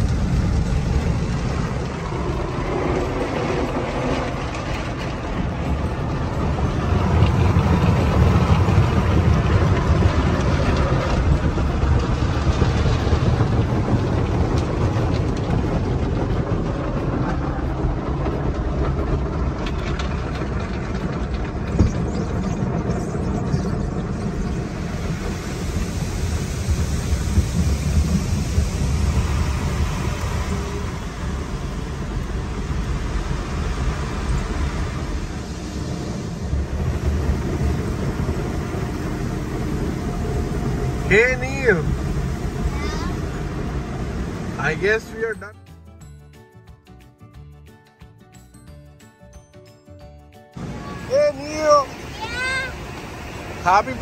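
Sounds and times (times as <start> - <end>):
car wash machinery: 0.0 - 45.5, 50.6 - 54.0
water spray rushing: 24.2 - 45.1.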